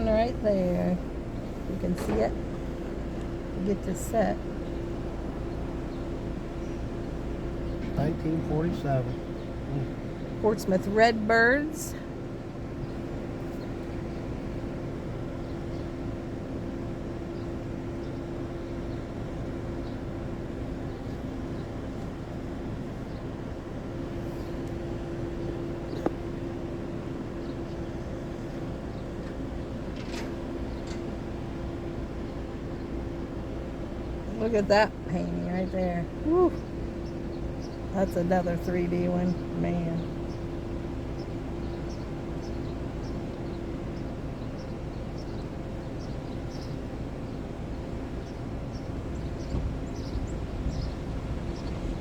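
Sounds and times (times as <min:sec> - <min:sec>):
car engine hum: 0:00.0 - 0:29.8, 0:34.0 - 0:43.8
road rumble: 0:00.0 - 0:52.0.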